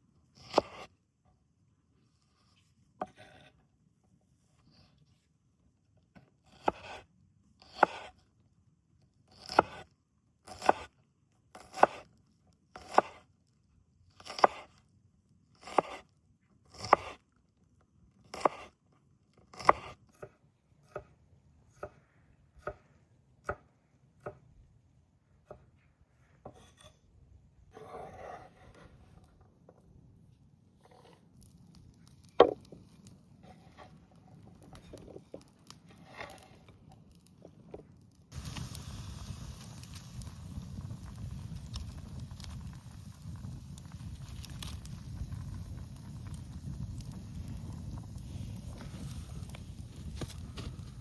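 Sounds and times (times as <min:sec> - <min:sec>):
knife scraping: 0:02.3 - 0:03.6, 0:26.5 - 0:27.1, 0:27.7 - 0:29.3, 0:30.8 - 0:31.2, 0:34.7 - 0:36.7
knife chopping on cutting board: 0:07.7 - 0:08.1, 0:11.6 - 0:12.0, 0:19.5 - 0:20.3.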